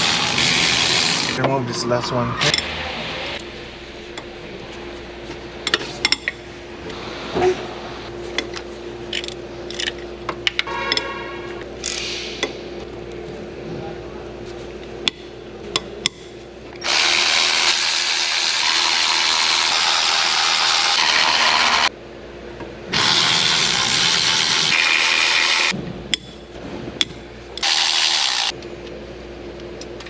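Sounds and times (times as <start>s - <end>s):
power tool running: 0.0s - 1.4s, 16.8s - 21.9s, 22.9s - 25.8s, 27.6s - 28.6s.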